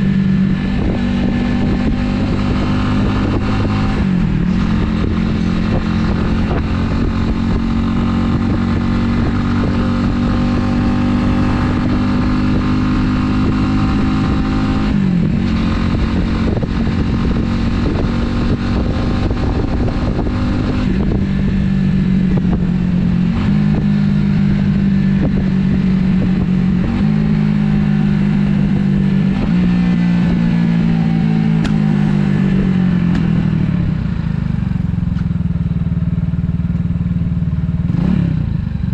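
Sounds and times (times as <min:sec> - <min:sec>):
motorcycle engine shifting gears: 0:00.0 - 0:38.9.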